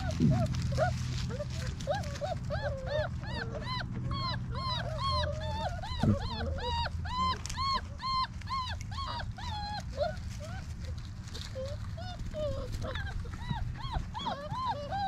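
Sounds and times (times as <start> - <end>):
lower puppy voice: 0.0 - 10.8
puppies whining: 0.0 - 15.0.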